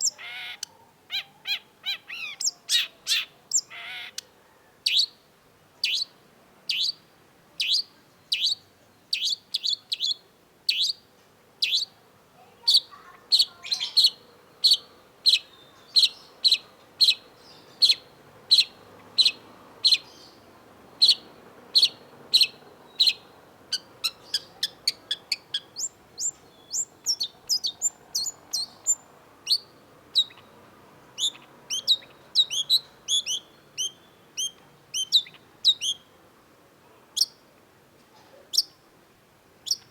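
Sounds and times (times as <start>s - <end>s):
shrike calling: 12.6s - 30.6s, 31.2s - 36.1s.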